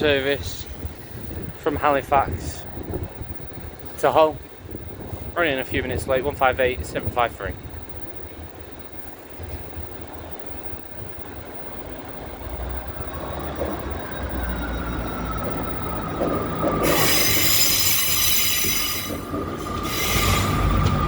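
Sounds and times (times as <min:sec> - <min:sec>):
train braking whine and rumble: 0:00.0 - 0:21.0
high-pitched brake squeal: 0:14.6 - 0:21.0.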